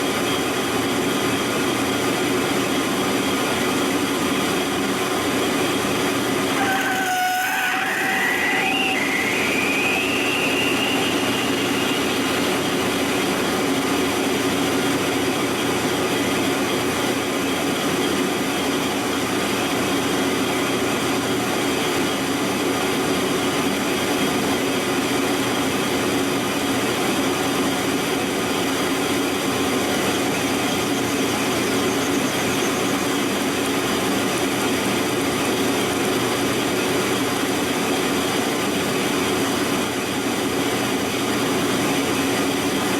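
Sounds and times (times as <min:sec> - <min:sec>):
constant machine hum: 0:00.0 - 0:42.9
lathe machining noise: 0:00.1 - 0:26.5.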